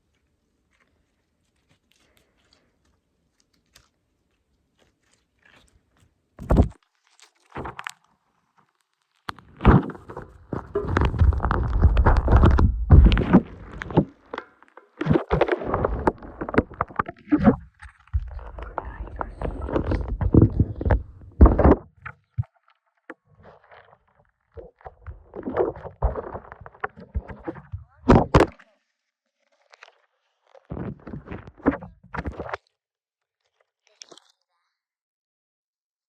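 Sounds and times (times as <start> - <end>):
rustling: 0.0 - 21.8
handling thumps and knocks: 6.4 - 6.8, 9.6 - 22.1.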